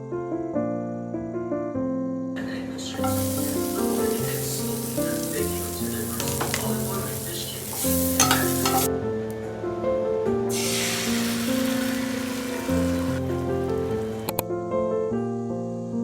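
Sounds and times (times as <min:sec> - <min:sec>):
light background music: 0:02.4 - 0:16.0
food sizzling in a pan: 0:02.8 - 0:08.9, 0:10.5 - 0:14.3.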